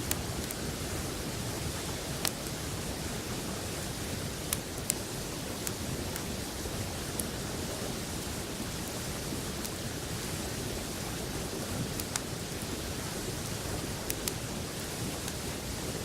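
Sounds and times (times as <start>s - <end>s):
campfire crackling and popping: 0.0s - 0.6s, 1.8s - 3.0s, 3.8s - 7.4s, 11.5s - 15.5s.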